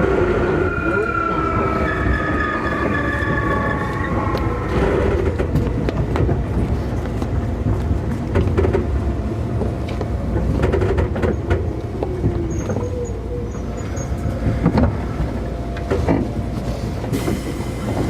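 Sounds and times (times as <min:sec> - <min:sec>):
train wheels rumbling: 0:00.0 - 0:18.0
wheels clicking over rail joints: 0:03.9 - 0:18.0.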